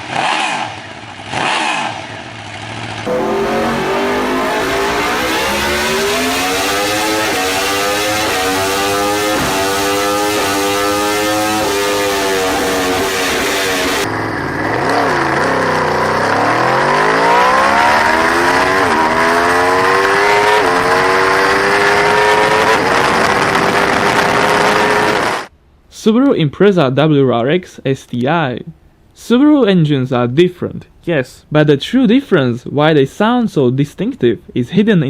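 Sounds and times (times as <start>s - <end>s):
motorcycle engine revving: 0.0s - 25.5s.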